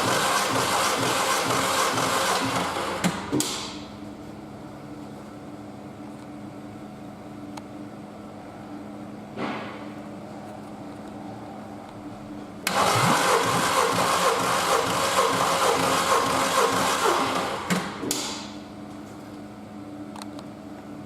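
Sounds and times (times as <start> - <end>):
steady low hum: 3.8 - 15.6
petrol engine running: 12.6 - 17.8.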